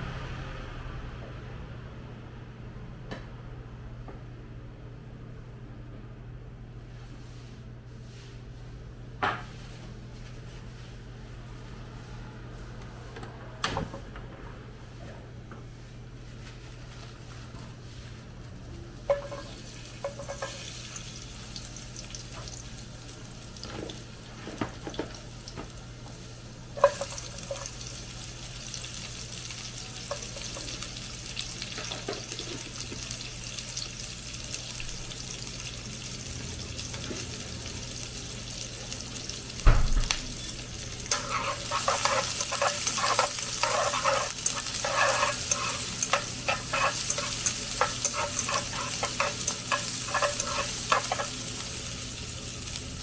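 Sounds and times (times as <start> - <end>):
garlic sizzling in oil: 17.9 - 53.0
utensil stirring and scraping pan: 19.1 - 21.0, 26.8 - 27.9, 40.4 - 51.9.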